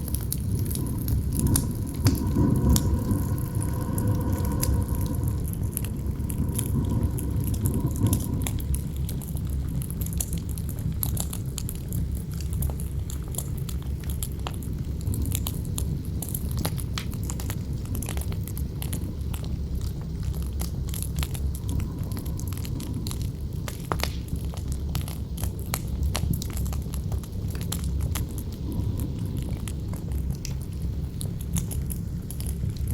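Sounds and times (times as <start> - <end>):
campfire crackling and popping: 0.0 - 32.9
howling wind: 0.0 - 32.9
low wind rumble: 0.0 - 32.9.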